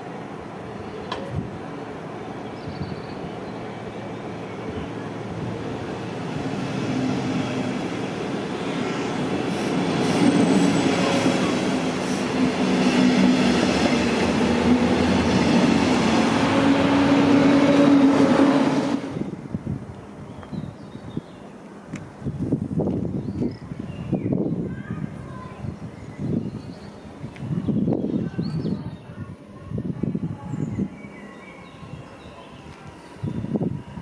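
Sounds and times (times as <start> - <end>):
train wheels rolling on rails: 3.4 - 19.4.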